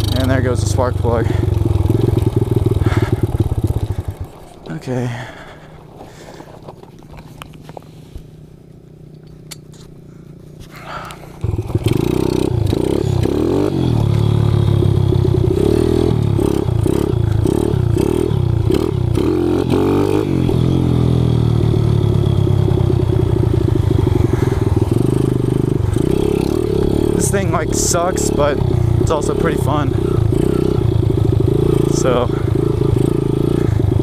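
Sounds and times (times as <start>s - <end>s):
motorbike engine revving: 0.0s - 7.6s, 8.4s - 34.0s.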